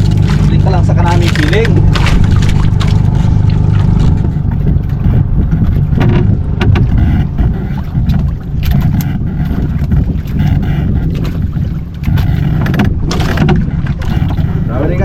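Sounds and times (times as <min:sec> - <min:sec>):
boat engine running: 0:00.0 - 0:15.0
sharp knocks: 0:01.2 - 0:14.6.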